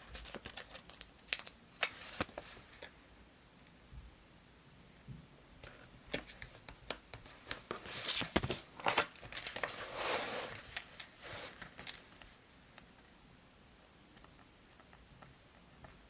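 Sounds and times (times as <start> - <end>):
paper crinkling and rustling: 0.0 - 2.9, 6.1 - 12.2.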